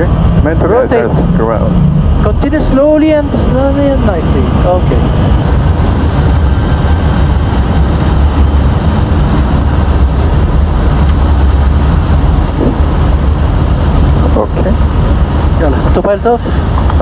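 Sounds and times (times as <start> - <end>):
cockpit engine and airflow rumble: 0.0 - 17.0.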